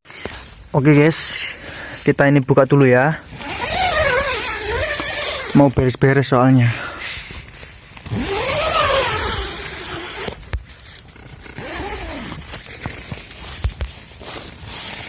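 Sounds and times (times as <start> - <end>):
rustling: 0.1 - 15.0.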